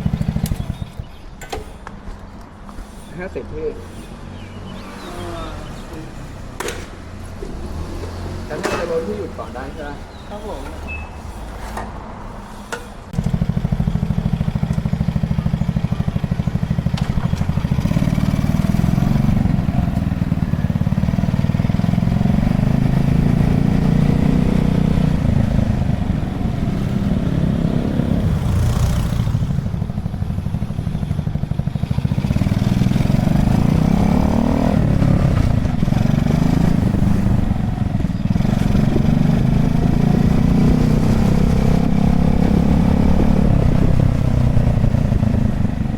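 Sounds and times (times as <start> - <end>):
minibike engine running: 0.0 - 1.6, 13.2 - 45.9.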